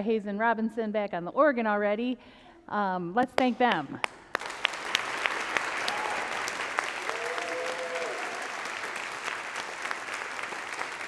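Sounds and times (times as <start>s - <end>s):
congregation clapping: 3.7s - 11.0s.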